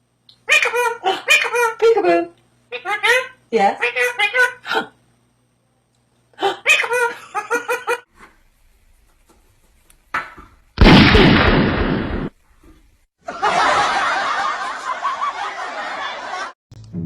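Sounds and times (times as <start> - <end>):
laughter: 6.6 - 8.1, 13.2 - 16.6
loud burst of noise: 10.8 - 12.4.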